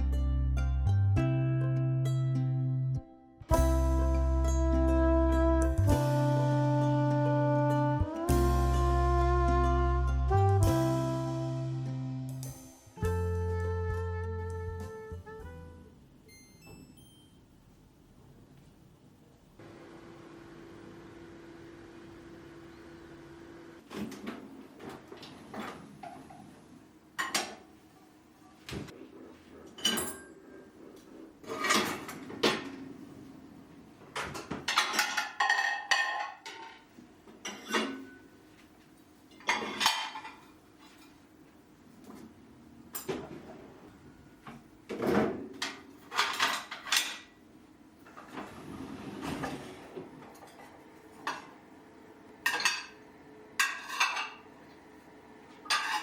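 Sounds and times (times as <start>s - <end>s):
dishes and cutlery clinking: 29.6s - 30.8s, 34.2s - 38.4s, 39.3s - 41.3s, 42.9s - 43.6s, 44.9s - 47.4s, 52.4s - 53.0s, 53.6s - 54.5s, 55.6s - 56.0s.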